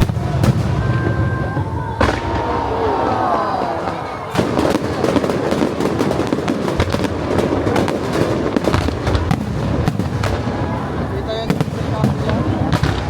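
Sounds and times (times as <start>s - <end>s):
firework whistles: 0.0s - 8.9s
loud firework bang: 0.0s - 10.6s
firework crackling and popping: 0.0s - 13.0s.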